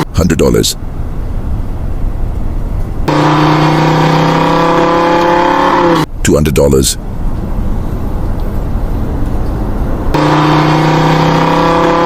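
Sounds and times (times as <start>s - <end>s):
motor whine: 3.1s - 6.1s, 10.1s - 12.0s.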